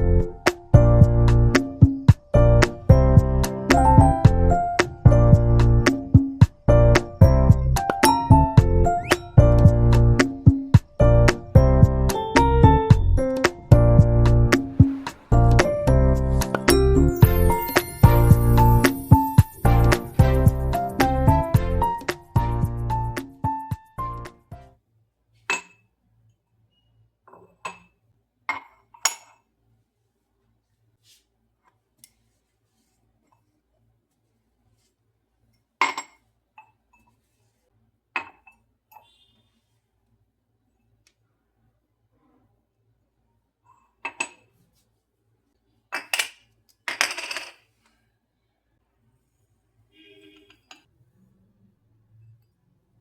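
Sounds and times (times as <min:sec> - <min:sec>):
glassware and dishes clinking: 0:27.3 - 0:29.5, 0:35.8 - 0:37.1, 0:44.1 - 0:44.5, 0:46.0 - 0:47.7
hard objects clinking and clattering: 0:46.0 - 0:47.7.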